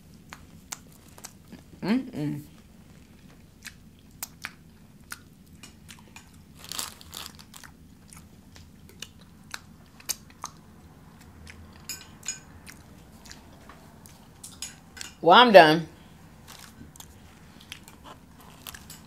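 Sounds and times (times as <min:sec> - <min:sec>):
chewing and lip smacks: 0:00.2 - 0:01.7, 0:02.9 - 0:06.4, 0:07.4 - 0:14.6, 0:16.5 - 0:19.0.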